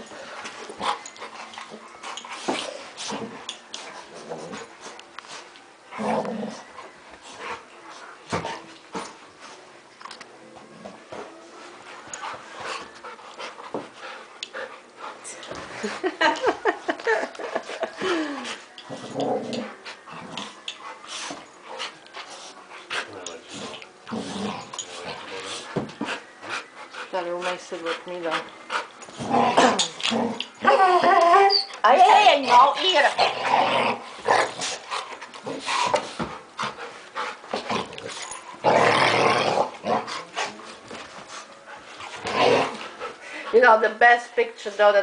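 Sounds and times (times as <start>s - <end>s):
puppies growling: 5.9s - 6.8s, 23.6s - 25.8s, 28.8s - 31.6s, 32.4s - 40.9s, 41.8s - 43.2s
puppies whining: 28.9s - 33.1s
puppies scuffling: 39.6s - 45.0s.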